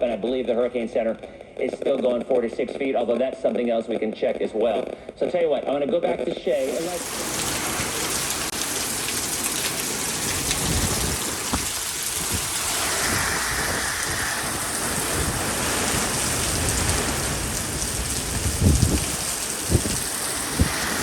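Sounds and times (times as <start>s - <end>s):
heavy rain: 6.5s - 21.0s
gusty wind rumbles: 10.0s - 21.0s.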